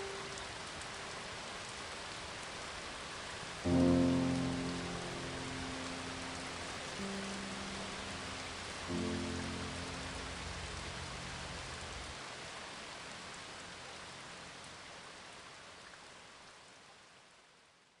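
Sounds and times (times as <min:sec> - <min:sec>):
rain hissing: 0:00.0 - 0:16.4
background music: 0:03.7 - 0:11.4.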